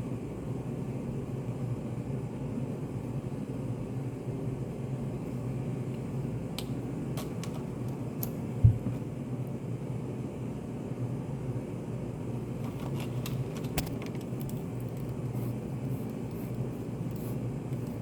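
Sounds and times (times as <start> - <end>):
ventilation hum: 0.0 - 18.0.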